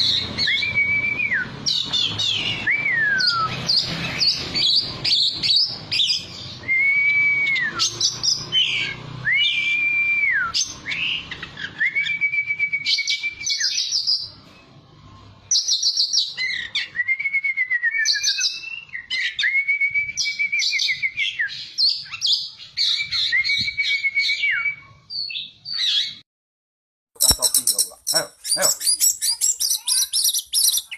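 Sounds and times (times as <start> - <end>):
bird whistled song: 0.0 - 14.4, 15.5 - 26.2, 27.2 - 30.9
bird chattering: 27.2 - 30.9.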